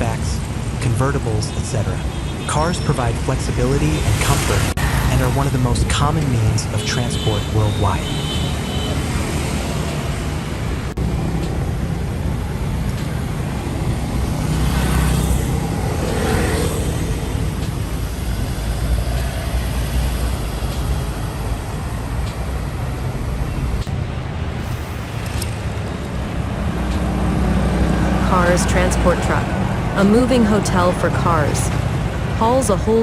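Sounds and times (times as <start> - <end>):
vehicle engines running: 0.0 - 33.0.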